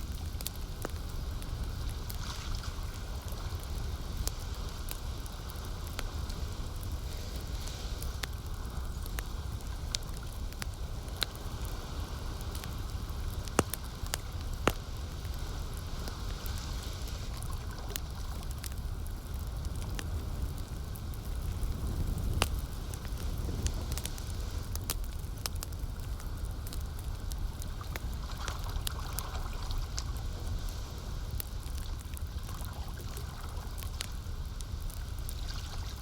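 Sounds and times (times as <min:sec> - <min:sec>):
campfire crackling and popping: 0:00.0 - 0:36.0
lake water washing: 0:27.8 - 0:31.2.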